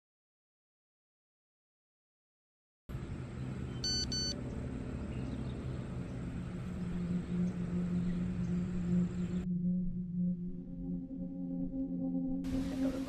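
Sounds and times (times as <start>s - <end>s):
low hum: 2.9s - 13.0s
low rumbling ambience: 2.9s - 13.0s
short high-pitched beeps: 3.8s - 4.4s.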